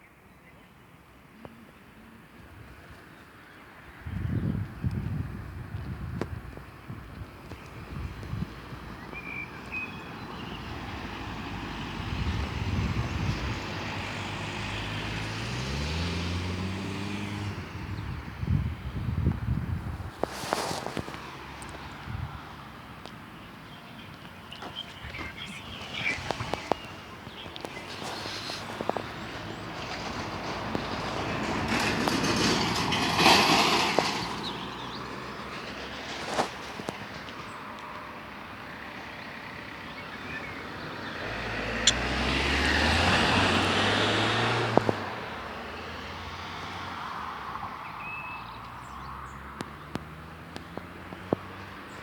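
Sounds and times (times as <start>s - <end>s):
vehicle engine passing by: 11.2s - 19.4s, 39.4s - 47.0s.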